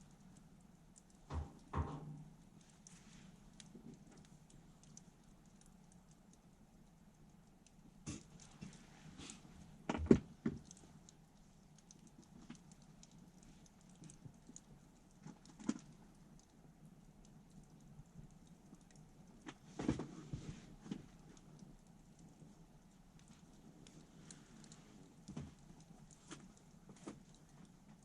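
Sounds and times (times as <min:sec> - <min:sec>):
wood fire crackling: 0:00.0 - 0:28.0
knocks and clatters: 0:01.3 - 0:02.3.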